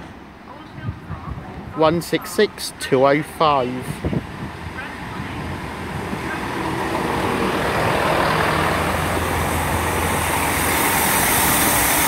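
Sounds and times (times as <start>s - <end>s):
diesel train engine hum: 0.0s - 12.0s
train wheel noise: 0.0s - 12.0s
train hiss: 8.4s - 12.0s.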